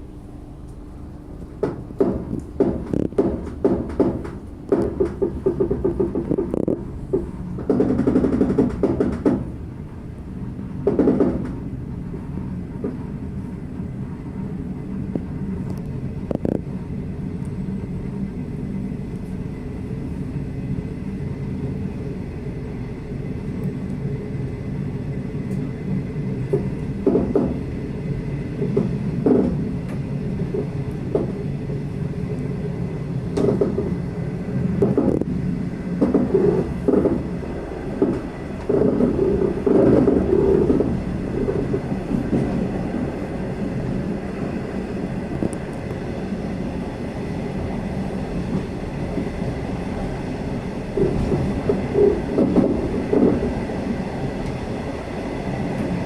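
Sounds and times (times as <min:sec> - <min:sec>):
train rumbling on rails: 0:00.0 - 0:56.0
wheels clattering and knocking: 0:01.6 - 0:09.5, 0:10.8 - 0:11.6, 0:38.0 - 0:42.7.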